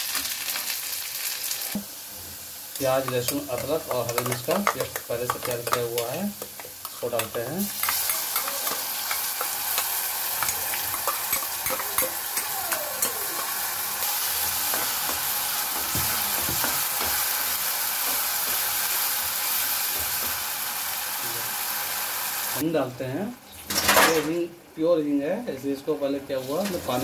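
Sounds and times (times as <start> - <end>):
paste sizzling in hot oil: 0.0 - 22.6
steel spoon scraping pan: 3.0 - 13.6.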